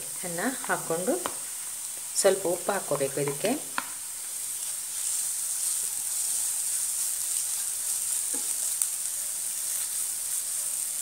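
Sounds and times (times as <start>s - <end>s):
potato and onion sizzling in oil: 0.0s - 11.0s
spatula stirring in pan: 2.7s - 11.0s.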